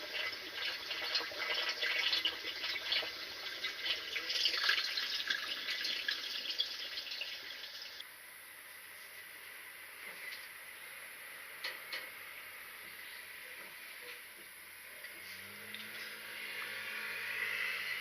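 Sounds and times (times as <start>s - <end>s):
water running and splashing: 0.0s - 8.0s
faint water hiss: 0.0s - 18.0s.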